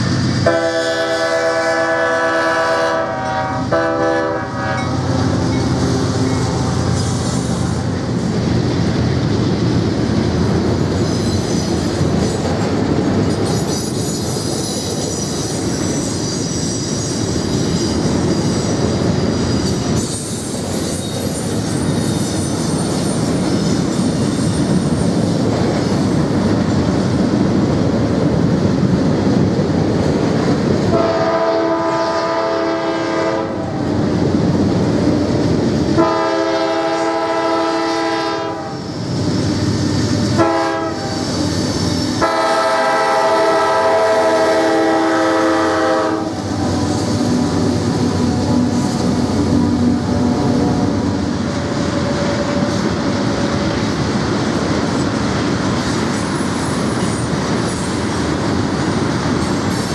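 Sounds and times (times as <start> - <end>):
train wheels on rails: 0.0 - 59.9
locomotive air horn blasts: 0.4 - 5.2, 30.9 - 33.8, 35.9 - 38.9, 40.2 - 41.4, 42.1 - 47.5
high wheel squeal: 10.9 - 12.6, 13.2 - 26.1.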